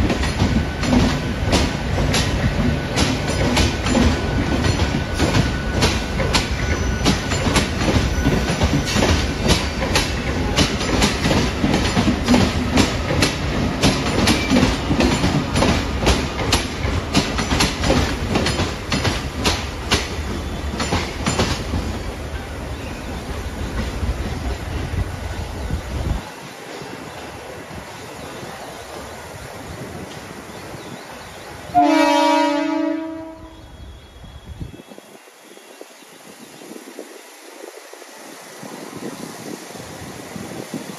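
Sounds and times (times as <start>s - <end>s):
wheels clattering over rail joints: 0.0s - 22.5s
train rumble: 0.0s - 40.9s.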